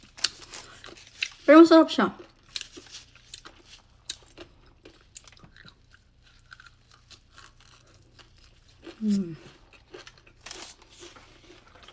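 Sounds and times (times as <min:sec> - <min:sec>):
person chewing: 0:00.0 - 0:01.5, 0:02.2 - 0:11.9.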